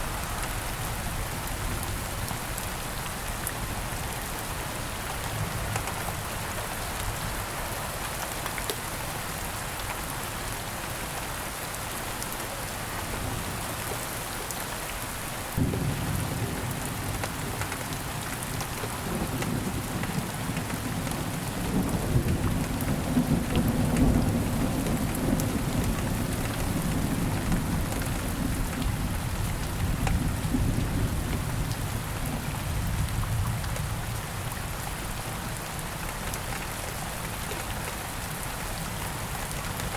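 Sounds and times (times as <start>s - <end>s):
steady rain falling: 0.0s - 39.9s
low rumble of thunder: 15.5s - 34.8s.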